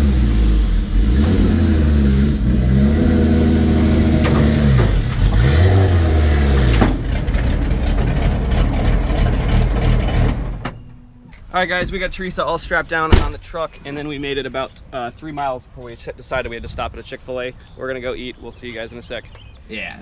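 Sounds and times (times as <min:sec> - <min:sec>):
race car engine revving: 0:00.0 - 0:10.6.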